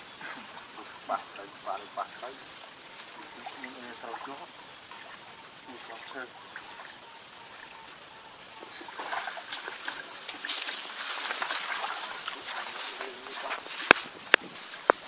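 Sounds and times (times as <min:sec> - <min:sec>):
water splashing in shallow water: 0:00.0 - 0:15.0.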